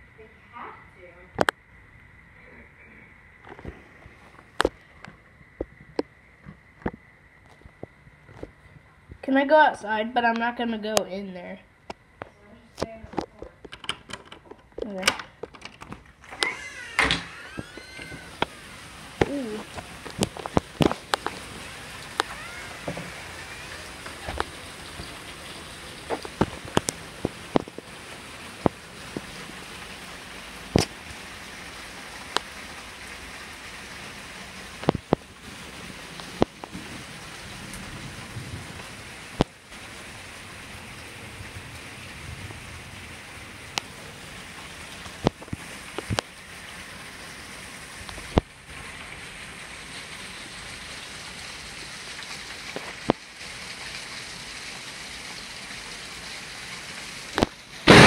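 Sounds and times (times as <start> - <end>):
heavy rain pouring: 13.7 - 58.0.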